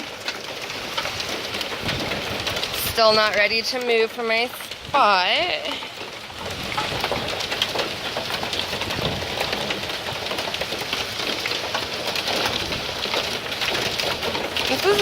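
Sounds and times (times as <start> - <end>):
hailstones ticking on hard surfaces: 0.0 - 15.0
rain hissing: 0.0 - 15.0.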